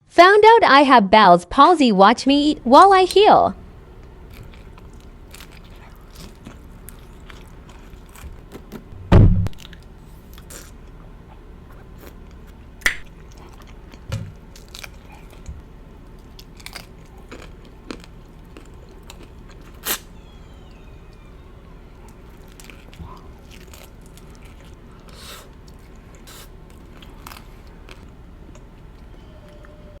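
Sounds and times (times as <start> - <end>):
chewing crunchy food: 4.0 - 8.9, 9.6 - 29.7
low thud: 9.0 - 9.6.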